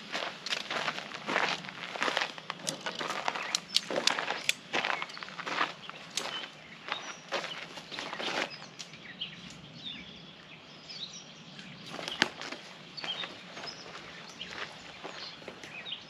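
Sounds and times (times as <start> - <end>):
birds chirping: 0.0 - 16.0
rustles and clicks: 11.9 - 15.8.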